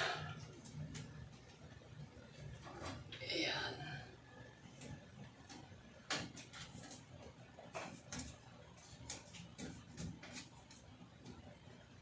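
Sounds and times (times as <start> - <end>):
electrical tape crackling: 0.0 - 3.4.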